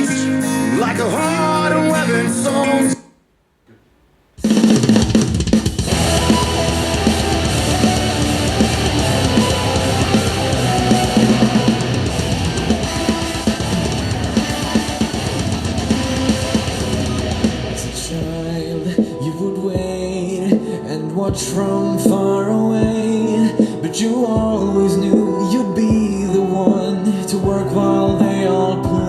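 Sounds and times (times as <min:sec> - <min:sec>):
heavy rock music from speaker: 0:04.4 - 0:23.7.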